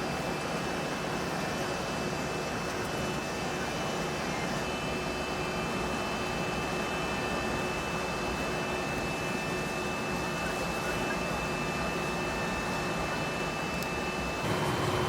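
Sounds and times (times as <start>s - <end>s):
faint high whine: 3.4s - 15.0s
aircraft cabin hiss and hum: 14.4s - 15.0s.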